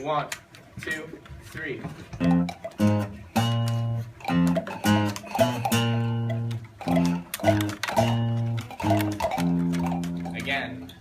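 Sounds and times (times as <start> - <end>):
plucked rubber band instruments: 2.1 - 11.0
palm pipes playing: 2.2 - 11.0.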